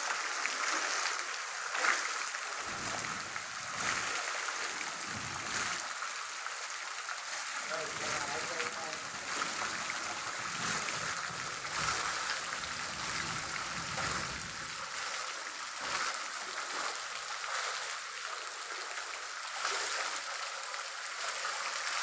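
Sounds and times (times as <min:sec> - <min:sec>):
heavy rain pouring: 0:02.2 - 0:18.8.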